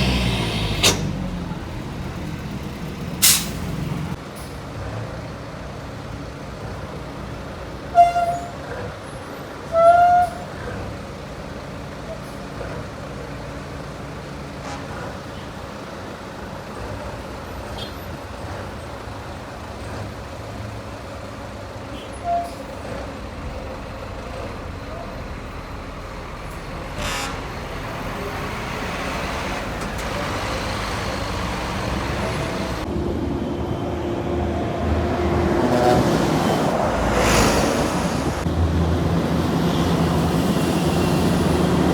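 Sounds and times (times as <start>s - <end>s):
heavy highway traffic: 0.0s - 41.9s
heavy vehicle engine approaching: 0.0s - 41.9s
short horn toots: 27.0s - 27.6s.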